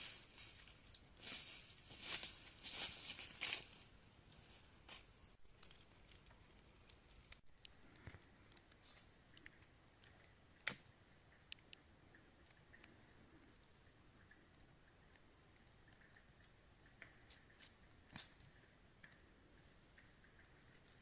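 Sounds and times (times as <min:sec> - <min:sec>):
faint rustling: 0:00.0 - 0:10.2
small clicks and ticks: 0:04.9 - 0:21.0.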